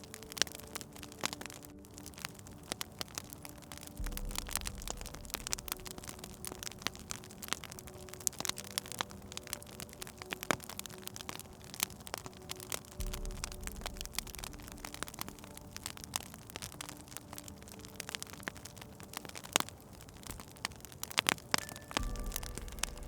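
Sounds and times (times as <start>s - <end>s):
wood fire crackling: 0.0s - 23.0s
low rumble: 4.0s - 7.8s, 13.0s - 15.6s, 22.0s - 23.0s.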